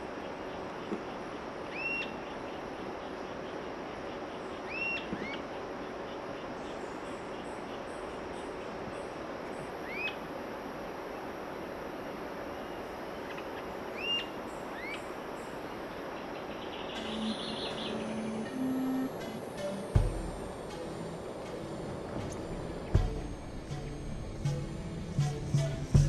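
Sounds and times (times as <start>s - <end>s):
steady outdoor hiss: 0.0s - 26.0s
bird chirping: 4.4s - 5.4s, 12.7s - 19.9s
music: 16.9s - 26.0s.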